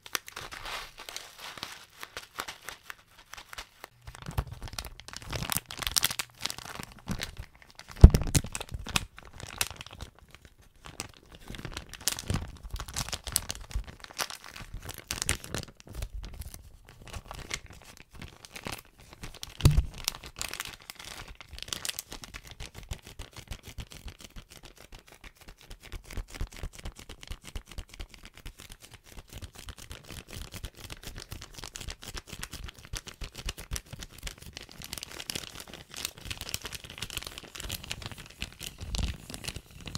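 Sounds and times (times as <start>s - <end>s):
plastic bag crinkling: 0.0s - 18.8s, 19.4s - 22.1s
thumps: 19.6s - 20.1s.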